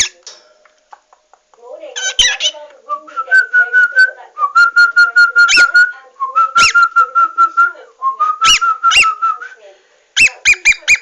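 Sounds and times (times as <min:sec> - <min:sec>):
bird whistling: 0:03.3 - 0:07.2, 0:08.3 - 0:09.4.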